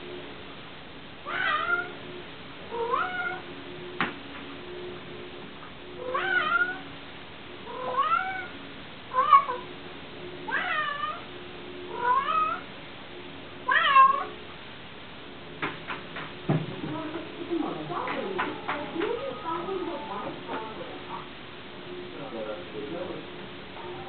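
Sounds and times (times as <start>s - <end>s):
cat meowing: 1.2s - 2.0s, 2.7s - 3.5s, 6.0s - 6.9s, 7.7s - 9.7s, 10.5s - 11.3s, 11.9s - 12.7s, 13.7s - 14.4s.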